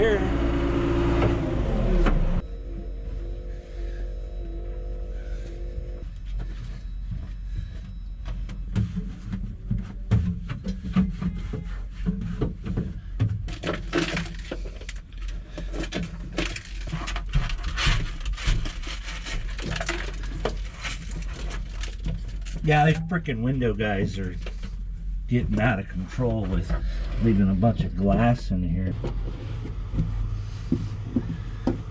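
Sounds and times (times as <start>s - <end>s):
steady low hum: 0.0s - 31.9s
broken glass clicking and crunching: 18.2s - 22.6s.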